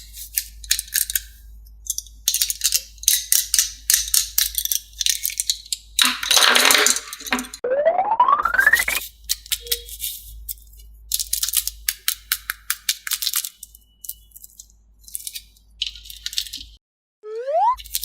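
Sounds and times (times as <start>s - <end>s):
rising whistle-like glide: 17.3s - 17.8s.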